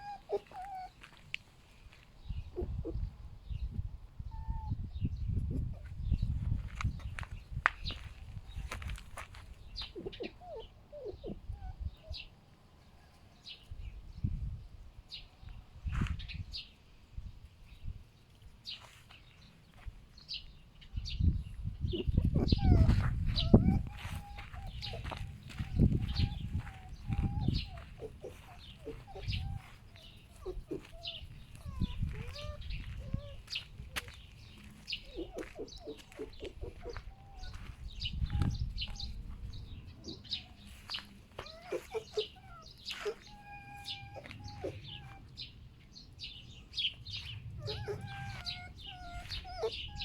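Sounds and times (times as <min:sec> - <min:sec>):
foxes grunting and clucking: 0:00.0 - 0:01.2, 0:02.4 - 0:03.2, 0:09.1 - 0:12.3, 0:21.8 - 0:45.6, 0:46.3 - 0:50.0.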